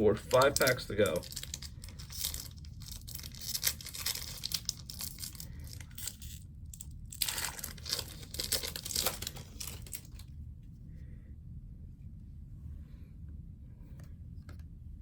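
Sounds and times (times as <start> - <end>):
card pack wrapper tearing and crinkling: 0.2 - 10.2.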